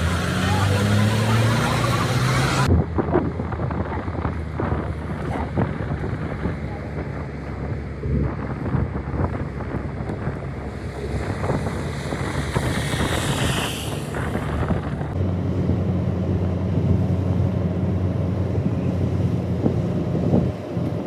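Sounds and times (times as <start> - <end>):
engine running low hum: 0.0 - 21.0
hiss: 12.4 - 14.6.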